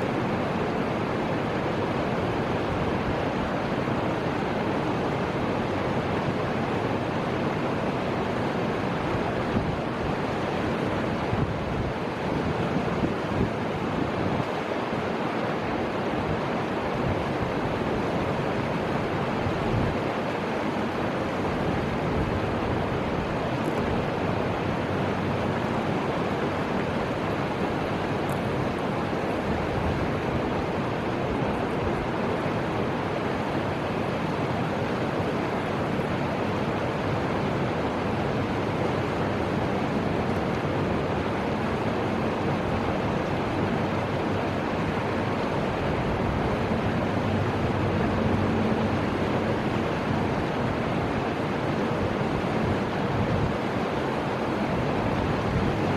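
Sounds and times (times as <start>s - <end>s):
river water rushing: 0.0s - 55.9s
wind on microphone: 0.0s - 55.9s.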